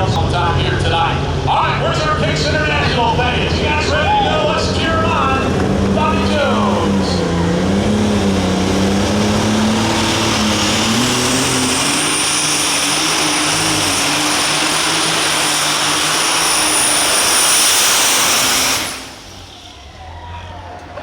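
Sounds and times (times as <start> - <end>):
tractor engine at full throttle: 0.0 - 21.0
turbocharger whine: 0.0 - 21.0.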